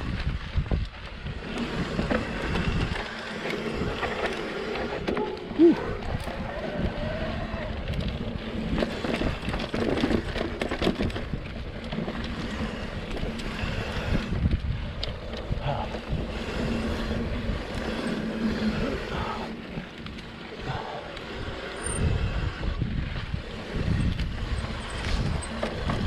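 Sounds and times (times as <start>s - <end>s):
bike knocking and rattling: 0.0s - 26.0s
tyres rolling on dirt and rock: 0.0s - 26.0s
wind buffeting the microphone: 0.0s - 26.0s.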